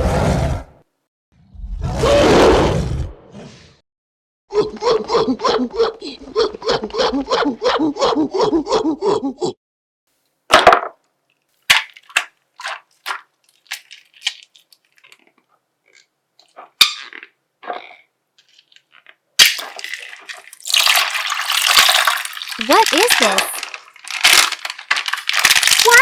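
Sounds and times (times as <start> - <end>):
plastic bag crinkling as torn: 19.5 - 26.0.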